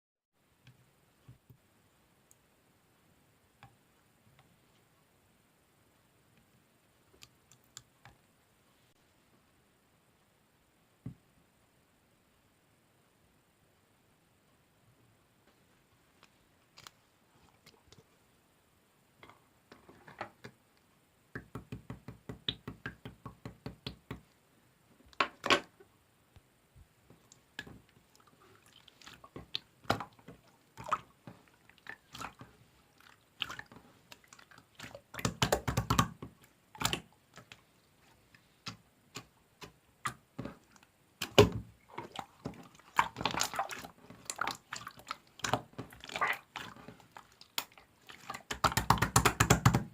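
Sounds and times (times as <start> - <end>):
slime squelching and popping: 27.2 - 37.7, 38.7 - 49.9.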